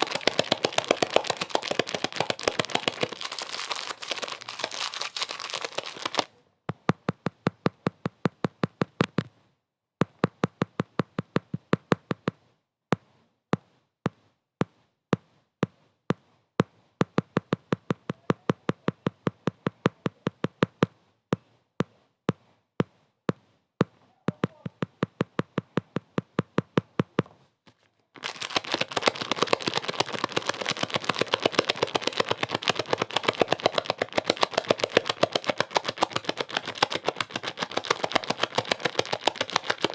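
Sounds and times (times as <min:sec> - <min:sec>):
sharp repeating clicks: 0:00.0 - 0:06.3, 0:28.2 - 0:39.9.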